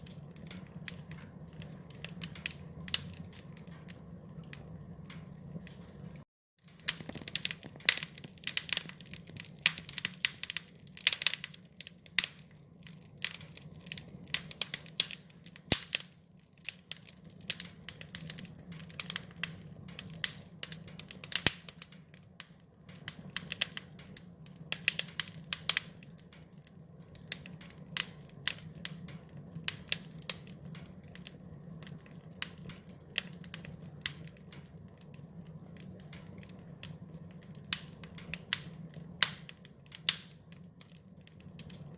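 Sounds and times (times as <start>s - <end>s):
low hum of burning fire: 0.0s - 41.9s
wood fire crackling and popping: 0.0s - 41.9s.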